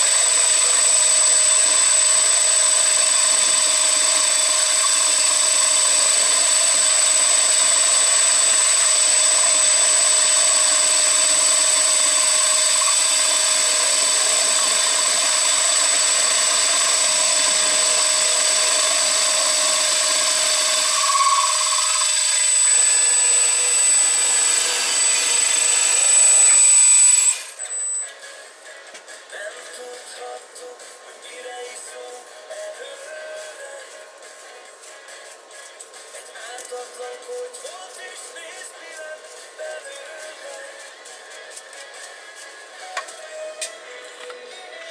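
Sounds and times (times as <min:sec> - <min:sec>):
machine running with high whine: 0:00.0 - 0:28.7.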